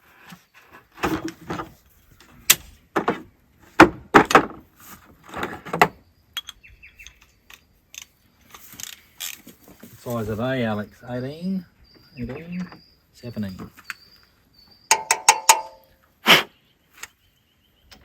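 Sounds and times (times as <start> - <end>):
metal tools clanking and knocking: 14.9 - 15.9.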